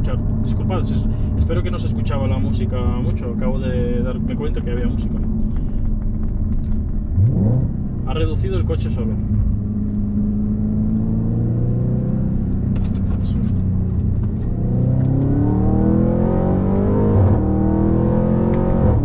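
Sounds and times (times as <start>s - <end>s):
car engine accelerating hard: 0.0s - 19.0s.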